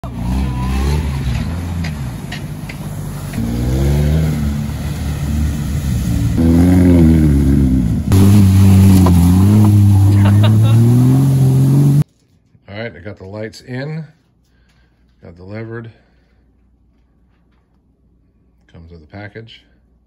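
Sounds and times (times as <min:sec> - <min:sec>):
engines revving hard: 0:00.0 - 0:12.0.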